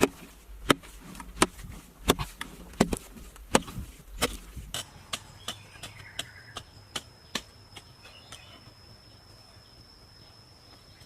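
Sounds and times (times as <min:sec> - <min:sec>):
sharp chopping strikes: 0:00.0 - 0:07.9.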